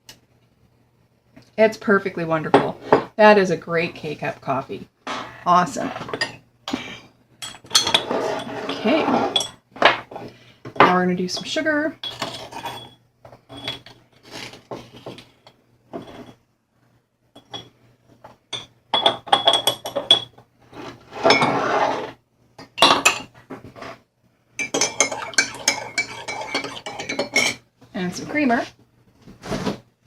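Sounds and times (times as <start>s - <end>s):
metal spoon clinking on cup: 18.5s - 20.3s, 24.6s - 27.6s
scraping rustle: 29.3s - 29.8s.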